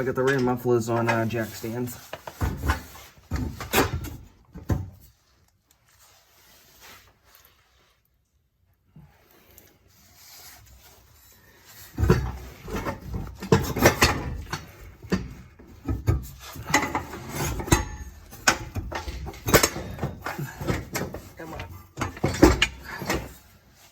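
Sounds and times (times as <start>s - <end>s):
metal scraping and clanking: 0.0s - 4.3s, 10.8s - 23.9s.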